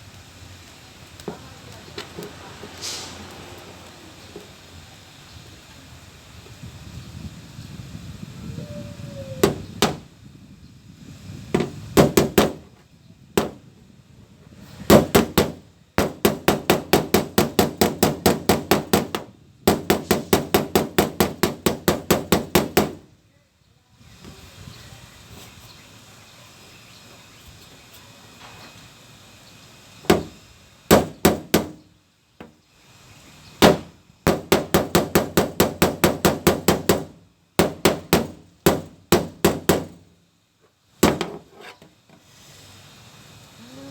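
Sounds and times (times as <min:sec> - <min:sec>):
hammer striking sheet metal: 0:14.9 - 0:23.0.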